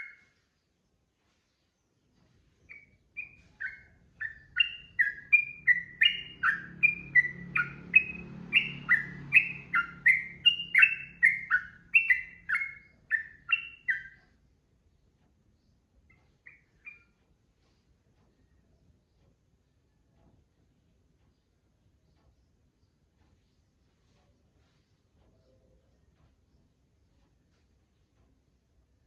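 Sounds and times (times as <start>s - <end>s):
bulbul singing: 0.0s - 0.4s, 2.6s - 14.4s, 15.6s - 17.2s.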